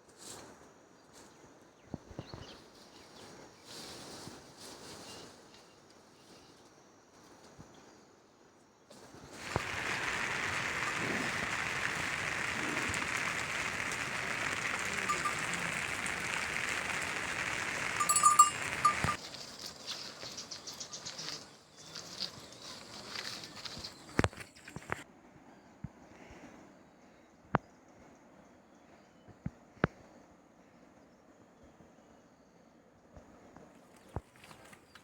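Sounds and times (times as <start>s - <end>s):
steady loud hiss: 9.4s - 19.2s
scattered ticks: 9.4s - 21.4s.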